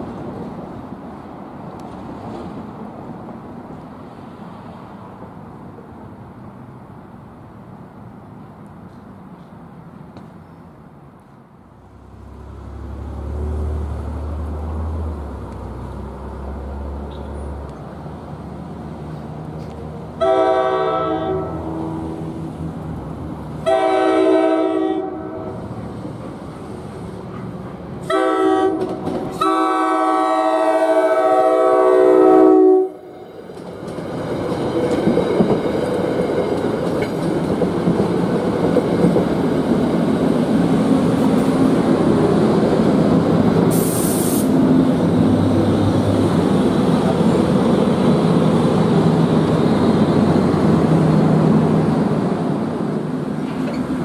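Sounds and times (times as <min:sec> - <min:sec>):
train rumbling past: 0:00.0 - 0:54.0
train horn blasts: 0:20.2 - 0:22.2, 0:23.6 - 0:25.6, 0:28.0 - 0:33.0
wheels clacking over rail joints: 0:28.7 - 0:29.5, 0:33.4 - 0:43.8, 0:53.3 - 0:54.0.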